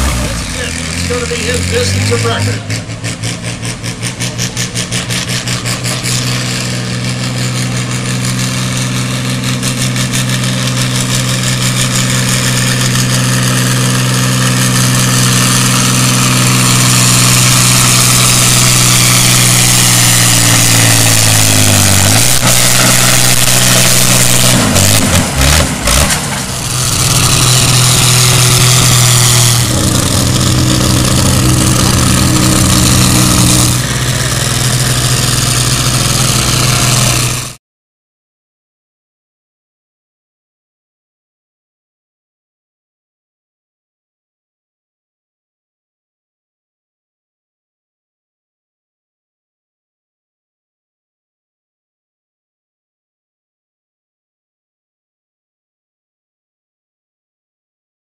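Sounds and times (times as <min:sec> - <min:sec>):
tractor engine running hard: 0:00.0 - 0:37.6.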